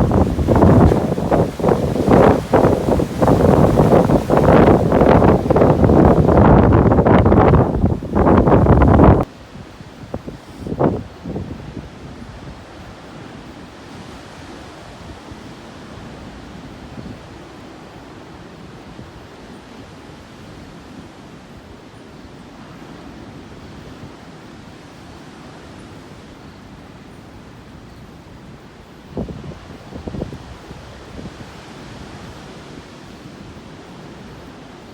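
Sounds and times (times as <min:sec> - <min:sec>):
wind on microphone: 0:00.0 - 0:13.1, 0:28.0 - 0:33.6
heavy storm surf: 0:00.0 - 0:34.9.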